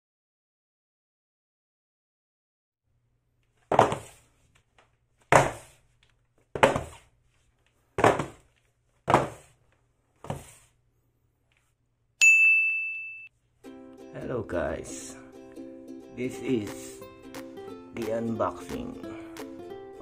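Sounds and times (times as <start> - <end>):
heavy thunks: 3.7 - 4.2, 5.3 - 5.8, 6.6 - 7.0, 8.0 - 8.4.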